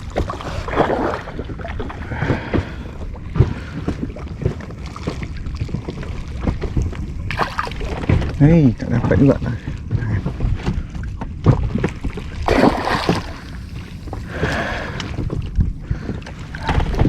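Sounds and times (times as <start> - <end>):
wind rumbling on microphone: 0.0 - 17.0
water splashing: 7.3 - 8.1, 12.3 - 15.0.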